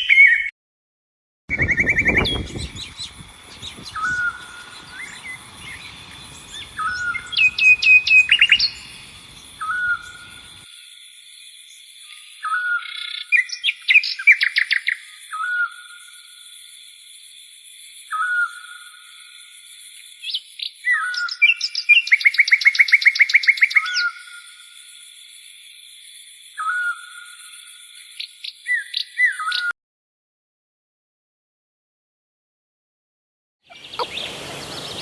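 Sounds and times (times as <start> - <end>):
birds trilling: 1.5 - 10.6, 33.7 - 35.0
bird short call: 33.7 - 35.0.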